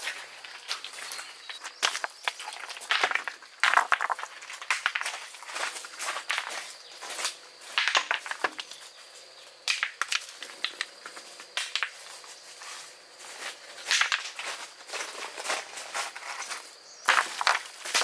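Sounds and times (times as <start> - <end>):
dry crunching and rustling: 10.0 - 18.0.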